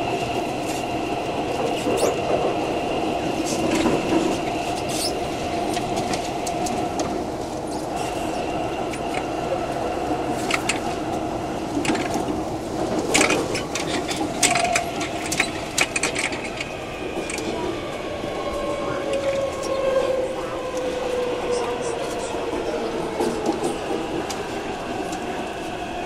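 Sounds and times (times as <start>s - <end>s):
sharp clicks and rattles: 13.0s - 17.5s.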